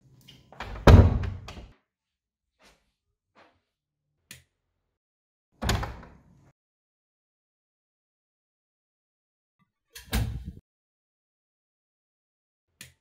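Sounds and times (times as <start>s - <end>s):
door thud and latch click: 5.6s - 6.1s.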